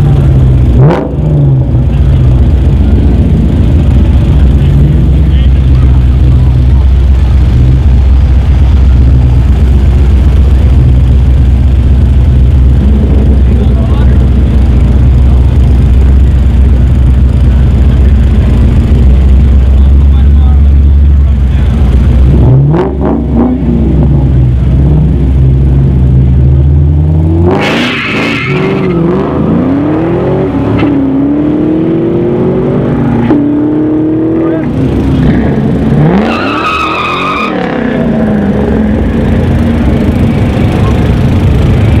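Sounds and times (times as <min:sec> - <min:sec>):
cars accelerating hard: 0:00.0 - 0:42.0
engines rumbling: 0:00.0 - 0:42.0
nearby engine idling: 0:01.7 - 0:22.3.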